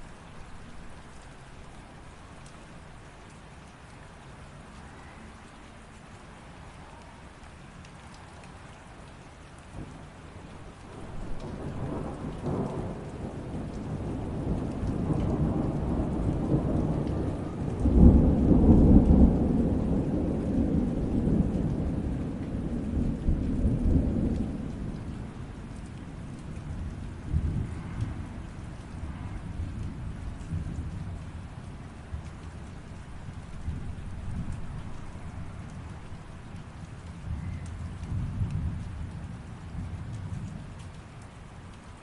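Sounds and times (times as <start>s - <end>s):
light rain: 0.0s - 42.0s
rolling thunder: 10.9s - 32.3s.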